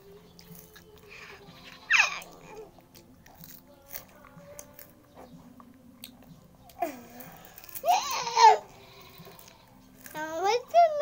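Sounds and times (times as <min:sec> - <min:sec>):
children crunching a snack: 0:05.6 - 0:10.5.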